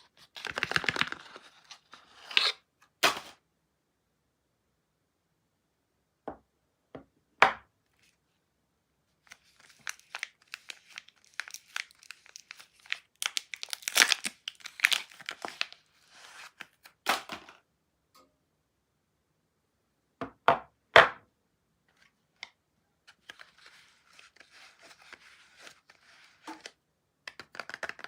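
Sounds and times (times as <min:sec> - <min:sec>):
wrapper tearing and crinkling: 0:09.3 - 0:17.4.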